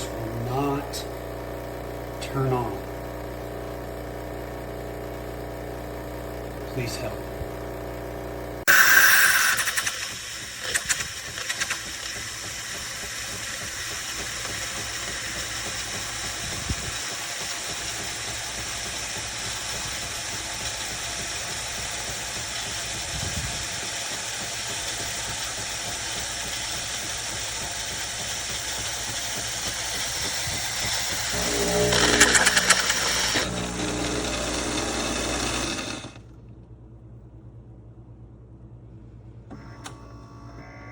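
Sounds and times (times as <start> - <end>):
coffee machine hissing: 0.0 - 36.4
coffee machine clicks: 8.7 - 22.7, 24.7 - 36.2.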